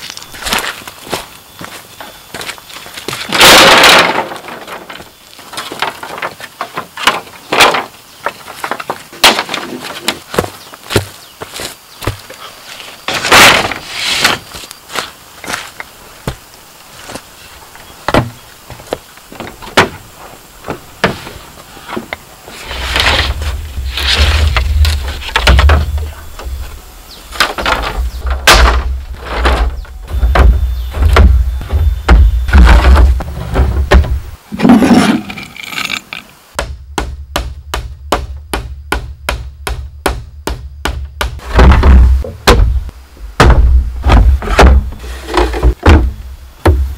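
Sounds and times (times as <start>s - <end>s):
scraping rustle: 0.0s - 17.8s, 18.6s - 36.4s, 44.0s - 45.8s
knocks and whacks on bamboo: 3.2s - 11.2s, 13.1s - 15.1s, 18.1s - 20.0s, 22.9s - 26.6s, 27.3s - 34.2s, 36.6s - 46.9s
tool knocking on bamboo: 36.6s - 42.8s.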